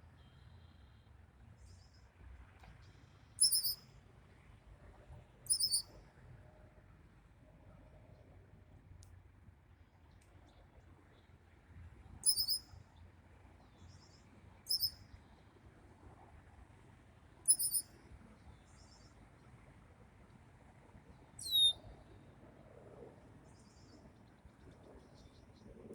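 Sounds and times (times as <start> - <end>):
faint bird calls: 3.4 - 3.8, 5.5 - 5.9, 12.2 - 12.6, 14.7 - 15.0, 17.5 - 17.9, 21.4 - 21.8
high-pitched bird chirps: 3.4 - 3.8, 5.5 - 5.8, 12.2 - 12.6, 14.7 - 14.9, 17.5 - 17.9, 21.4 - 21.8.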